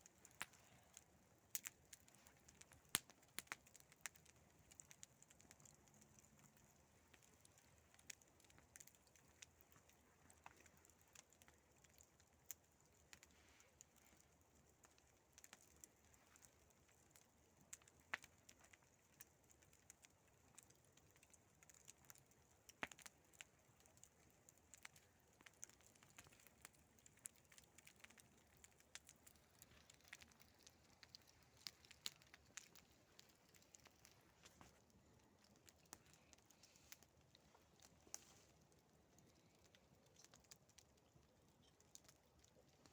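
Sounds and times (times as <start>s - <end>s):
campfire crackling: 0.0s - 42.9s
sharp snaps of fire: 0.0s - 42.9s.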